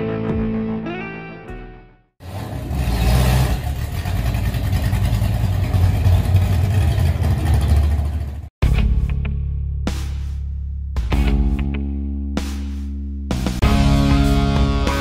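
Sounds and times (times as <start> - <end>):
car engine exhaust rumble: 2.2 - 8.5
music with heavy beat: 8.6 - 11.8, 12.4 - 15.0.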